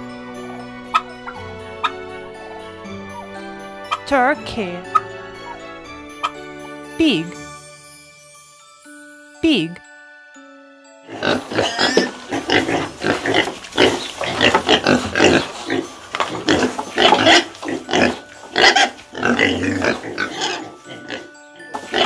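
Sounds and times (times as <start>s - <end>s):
pigs grunting: 11.1s - 22.0s.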